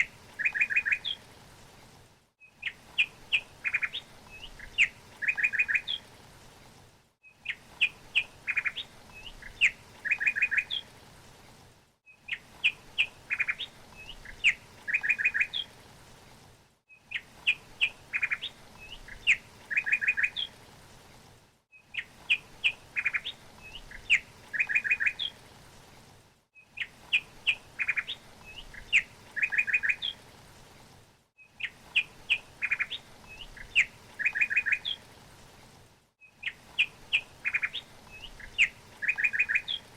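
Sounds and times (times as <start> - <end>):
bird chirping: 0.0 - 1.2, 2.4 - 6.0, 7.2 - 10.9, 12.1 - 15.7, 16.9 - 20.5, 21.7 - 25.4, 26.6 - 30.2, 31.4 - 35.0, 36.2 - 39.9
faint hiss: 0.0 - 39.9.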